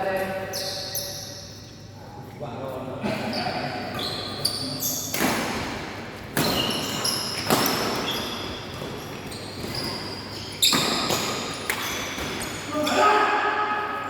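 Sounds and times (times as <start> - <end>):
shoes squeaking on court floor: 0.2 - 2.0, 3.1 - 5.6, 6.2 - 13.0
rackets hitting shuttlecock: 5.1 - 8.9, 10.6 - 12.6.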